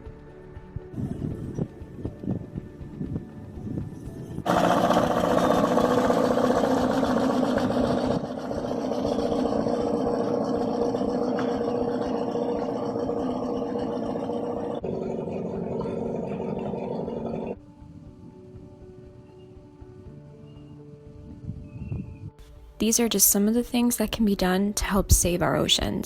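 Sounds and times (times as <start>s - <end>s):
engine humming: 2.2s - 18.8s.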